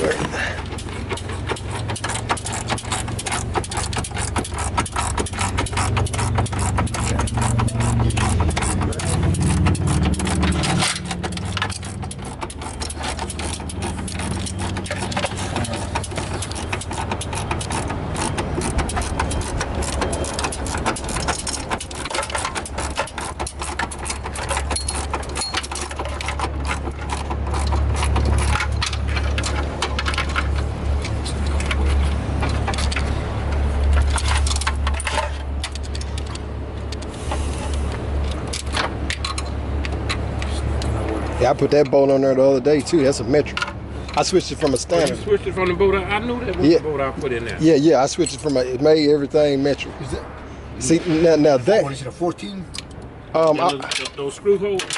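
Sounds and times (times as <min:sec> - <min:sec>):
wrenches clicking on metal bolts: 0:00.0 - 0:45.8, 0:47.5 - 0:50.2, 0:50.8 - 0:54.9.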